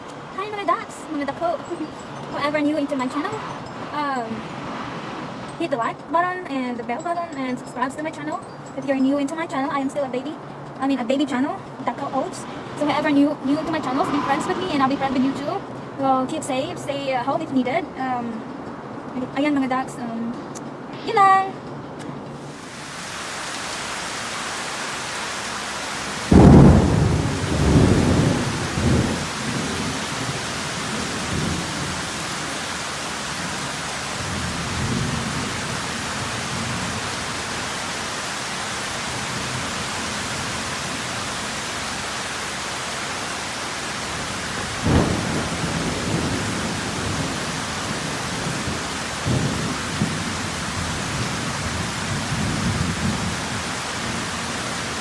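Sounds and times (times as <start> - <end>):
heavy rain falling: 22.4 - 55.0
thunder clap and rumble: 22.6 - 55.0.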